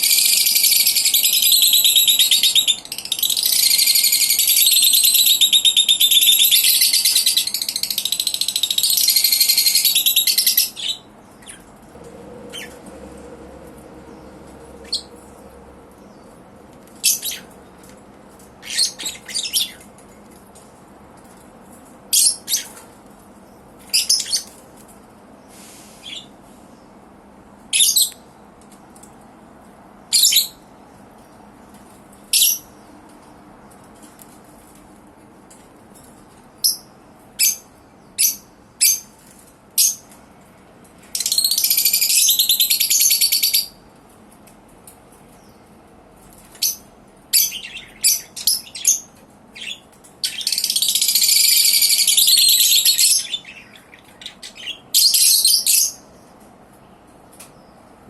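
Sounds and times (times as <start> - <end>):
lovebirds chirping: 1.0 - 17.9, 18.6 - 19.9, 46.5 - 56.2
birds harsh chattering: 5.6 - 19.9.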